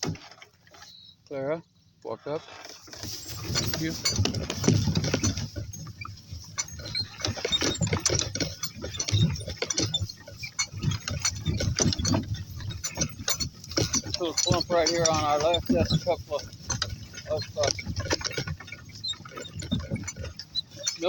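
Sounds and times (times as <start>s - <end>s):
donkey noises: 2.1s - 21.0s.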